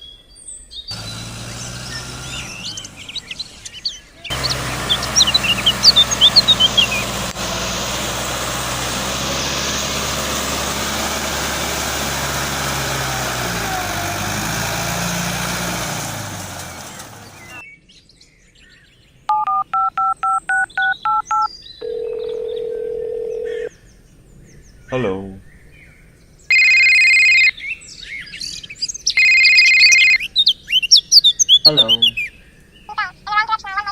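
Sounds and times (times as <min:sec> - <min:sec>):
mechanical running hum: 0:01.0 - 0:03.7, 0:04.3 - 0:09.2
phone keypad beeps: 0:19.3 - 0:23.7, 0:26.5 - 0:27.5, 0:29.2 - 0:30.2.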